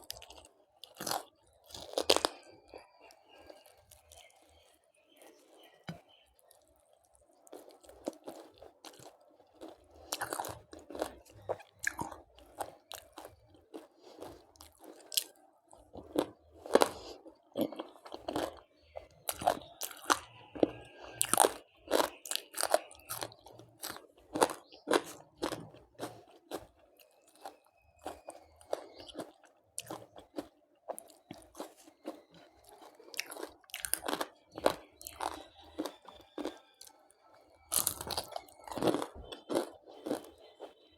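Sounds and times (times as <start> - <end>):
crunching bites of fried chicken: 0.0 - 4.3, 7.4 - 40.9.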